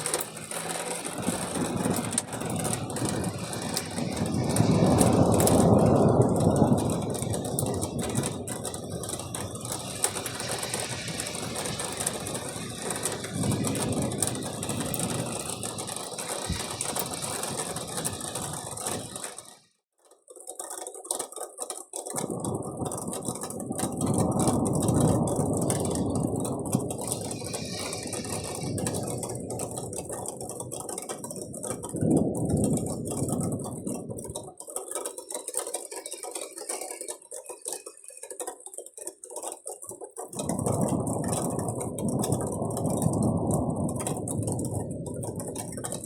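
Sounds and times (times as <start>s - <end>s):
rolling thunder: 0.0s - 19.5s, 22.2s - 34.5s, 40.4s - 46.0s
rain and hail pattering: 0.0s - 46.0s.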